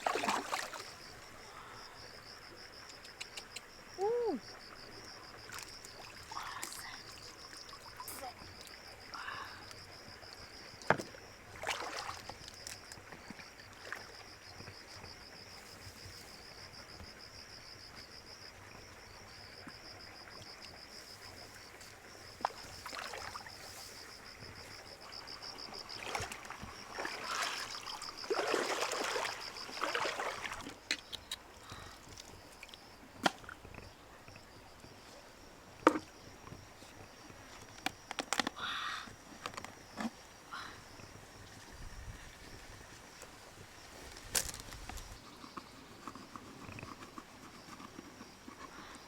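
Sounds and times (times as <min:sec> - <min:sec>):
water sloshing and splashing: 0:00.0 - 0:02.4, 0:04.7 - 0:09.0, 0:09.7 - 0:14.4, 0:20.3 - 0:33.9.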